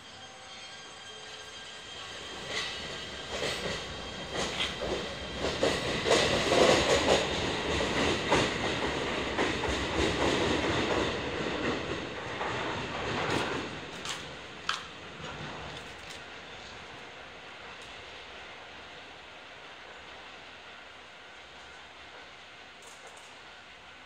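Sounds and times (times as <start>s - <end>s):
train wheels clattering over joints: 2.3s - 16.3s.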